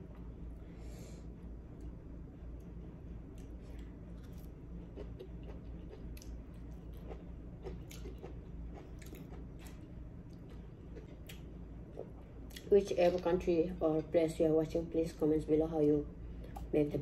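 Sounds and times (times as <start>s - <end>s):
steady low hum: 0.0s - 17.0s
wet chewing and mouth smacking: 3.3s - 12.7s.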